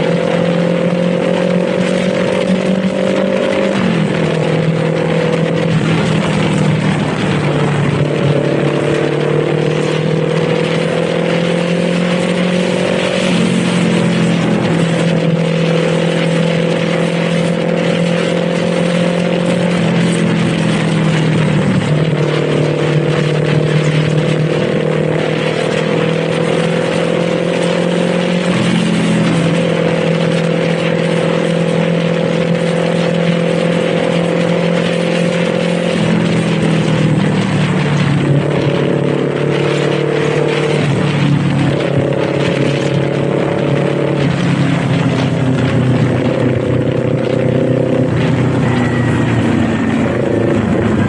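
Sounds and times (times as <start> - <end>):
motorcycle engine running: 0.0 - 51.0
wind and road noise: 0.0 - 51.0.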